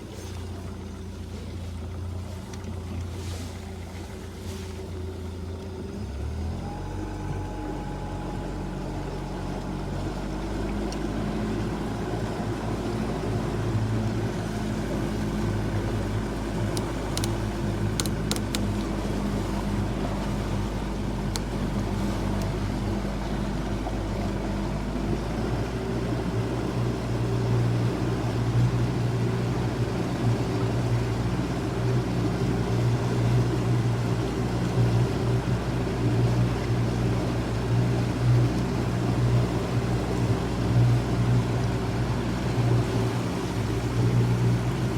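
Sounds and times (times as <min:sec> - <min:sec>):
motorboat engine running: 0:00.0 - 0:44.9
sharp clicks: 0:16.7 - 0:18.9.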